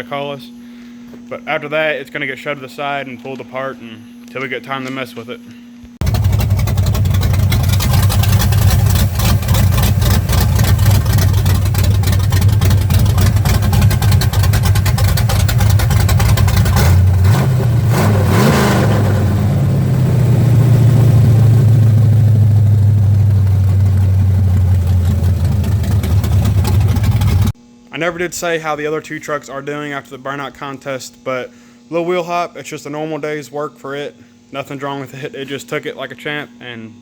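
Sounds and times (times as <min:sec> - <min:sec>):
car engine running unevenly: 0:06.0 - 0:27.6.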